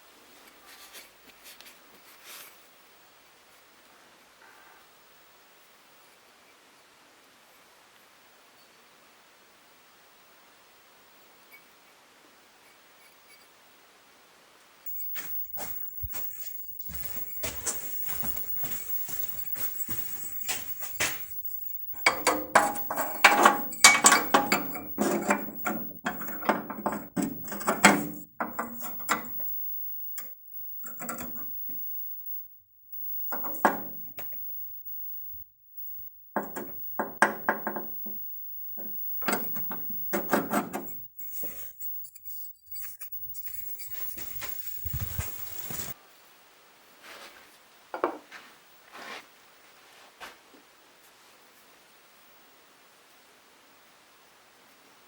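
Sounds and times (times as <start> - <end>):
short ringing tones: 14.9 - 46.0
metal objects clinking: 22.0 - 29.5.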